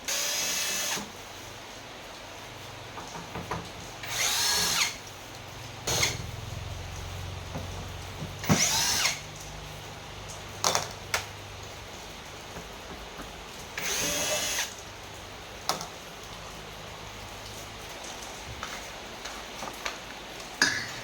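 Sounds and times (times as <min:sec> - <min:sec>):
electric screwdriver motor whirring: 0:00.1 - 0:01.1, 0:04.0 - 0:05.0, 0:05.9 - 0:06.2, 0:08.4 - 0:09.3, 0:13.8 - 0:14.7.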